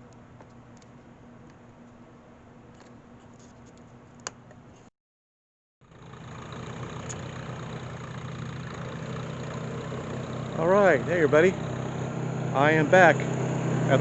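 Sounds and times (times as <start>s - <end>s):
low mechanical hum: 0.0s - 4.9s
engine idling: 5.8s - 14.0s.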